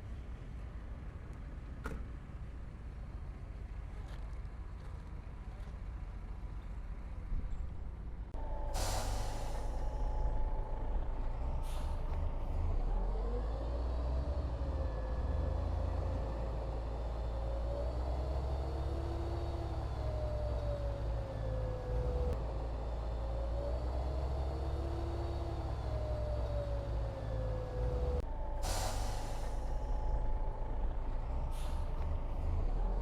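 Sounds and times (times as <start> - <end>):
diesel machinery running: 5.9 - 33.0
air release hiss: 28.6 - 29.7.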